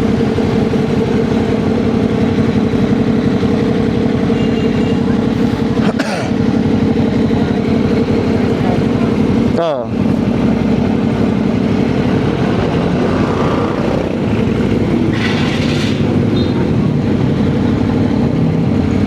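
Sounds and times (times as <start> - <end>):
motorcycle engine running: 0.0 - 19.0
rush of noise: 11.0 - 19.0.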